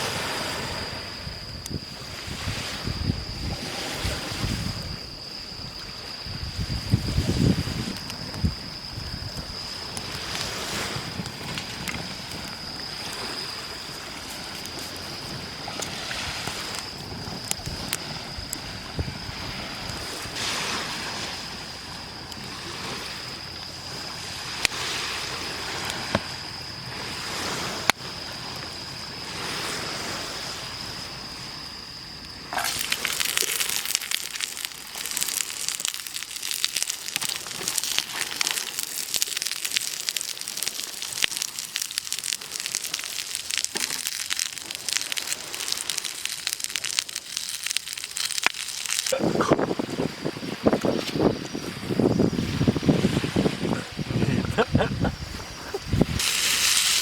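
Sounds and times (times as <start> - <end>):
waves washing up on beach: 0.0 - 57.0
dense crackling: 6.8 - 19.0, 32.3 - 49.9, 54.2 - 57.0.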